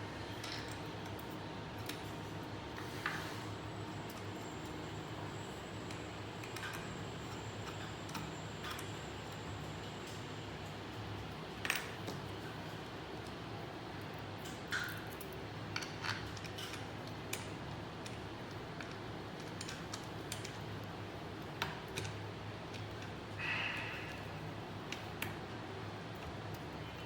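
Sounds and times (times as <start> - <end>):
clicks and taps of small parts: 14.4 - 21.0, 21.6 - 23.2.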